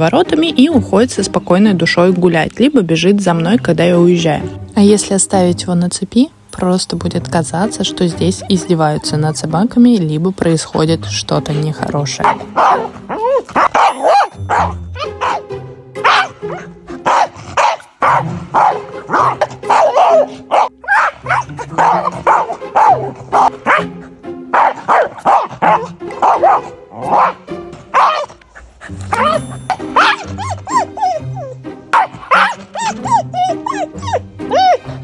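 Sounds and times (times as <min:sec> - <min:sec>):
background music: 0:00.0 - 0:35.0
dog barking and yelping: 0:12.2 - 0:35.0.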